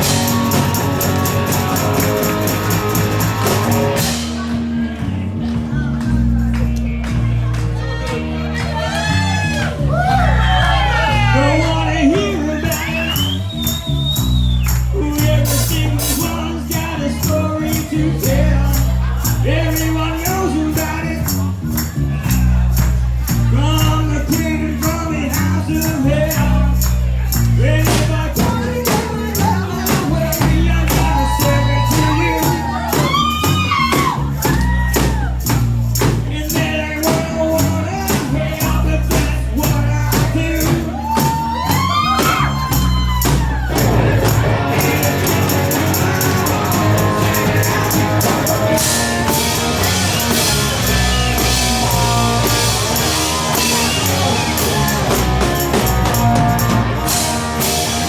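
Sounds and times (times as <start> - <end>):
tambourine: 0.0 - 5.2, 9.9 - 58.0
drums and cymbals: 0.0 - 6.5, 9.0 - 58.0
rock band playing: 0.0 - 58.0
person singing: 14.9 - 21.6, 23.3 - 58.0.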